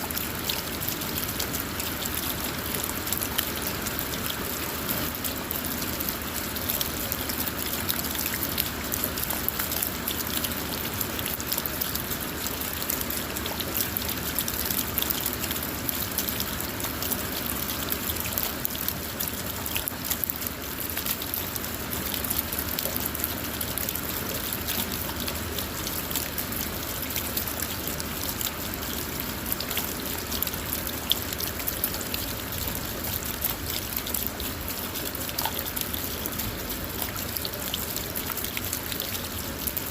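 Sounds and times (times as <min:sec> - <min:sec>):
rain drumming on car roof: 0:00.0 - 0:39.9
trickle of runoff water: 0:00.0 - 0:39.9.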